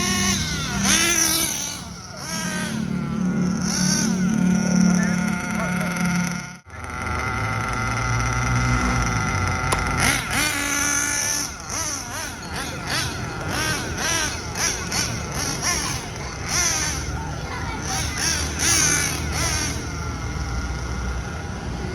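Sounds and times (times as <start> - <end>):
small two-stroke engine revving: 0.0 - 21.9.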